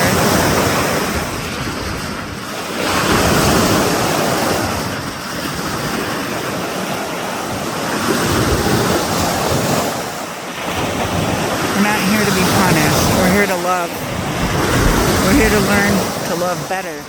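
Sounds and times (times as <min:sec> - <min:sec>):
steady rushing noise: 0:08.7 - 0:17.0.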